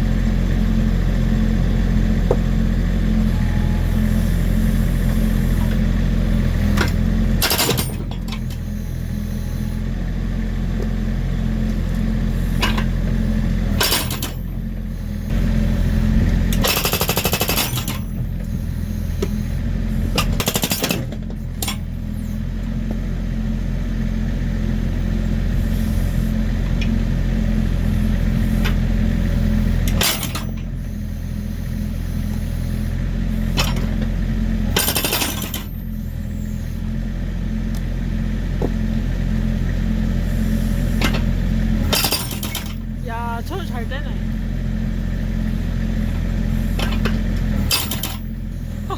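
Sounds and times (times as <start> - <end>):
diesel engine running: 0.0 - 48.9
hydraulic breaker hammering: 20.2 - 21.9, 34.7 - 35.7, 41.8 - 43.0, 46.8 - 48.4.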